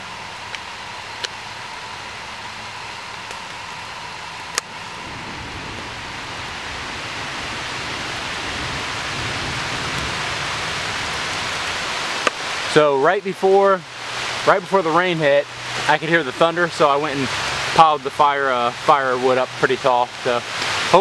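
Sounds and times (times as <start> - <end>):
steady rain falling: 0.0 - 21.0
sharp clicks: 4.5 - 4.7.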